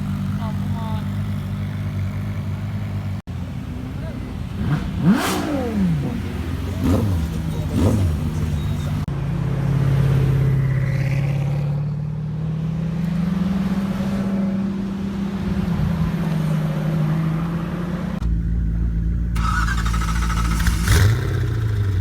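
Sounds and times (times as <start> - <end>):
deep engine rumble: 0.0 - 9.1, 18.2 - 22.0
car engine at high revs: 4.0 - 9.1, 10.1 - 22.0.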